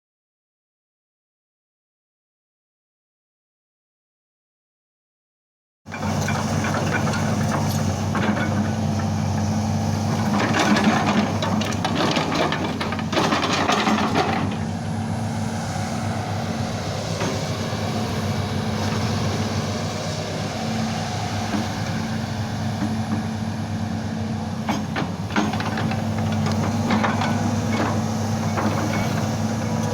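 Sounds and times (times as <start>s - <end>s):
excavator diesel engine running: 5.9s - 29.9s
metallic clanking and rattling: 10.1s - 14.8s.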